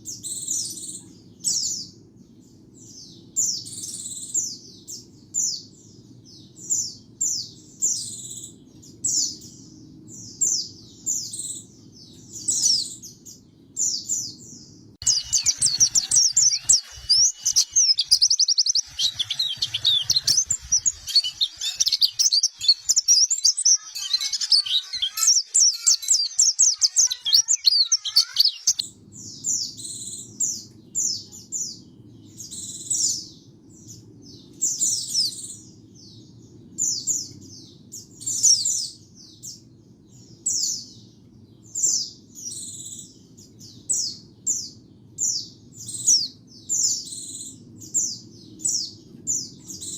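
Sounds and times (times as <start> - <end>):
bird chirps: 0.0 - 44.8
fast twittering bird song: 0.0 - 49.9.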